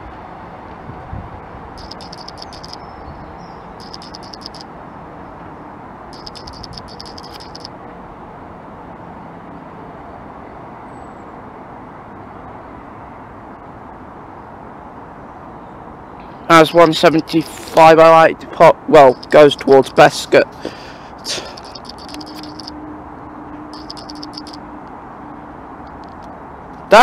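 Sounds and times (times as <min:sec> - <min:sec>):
fast high-pitched rattling: 0:01.8 - 0:02.8, 0:03.8 - 0:04.6, 0:06.1 - 0:07.7, 0:19.0 - 0:20.1, 0:21.2 - 0:22.7, 0:23.7 - 0:24.6.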